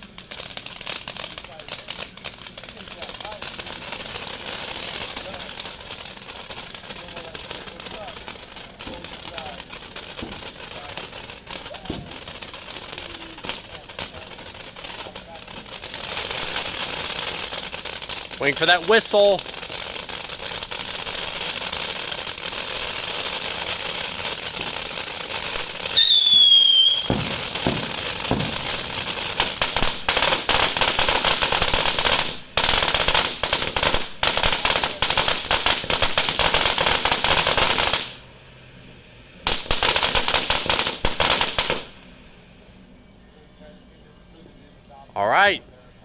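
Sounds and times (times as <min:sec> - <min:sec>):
fireworks crackling and popping: 0:00.0 - 0:43.2, 0:45.2 - 0:45.6
falling firework whistle: 0:16.2 - 0:38.4, 0:39.4 - 0:42.4.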